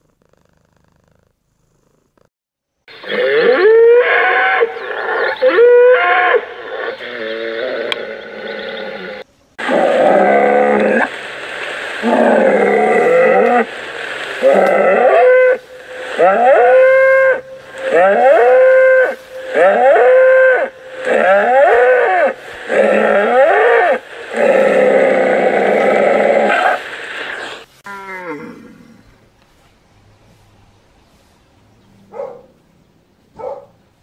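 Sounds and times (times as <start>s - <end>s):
cattle mooing: 12.0s - 13.7s, 14.4s - 26.8s.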